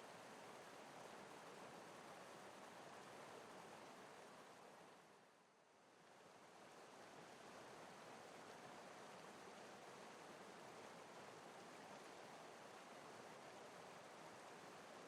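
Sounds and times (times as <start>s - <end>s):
faint rush of water: 0.0s - 15.0s.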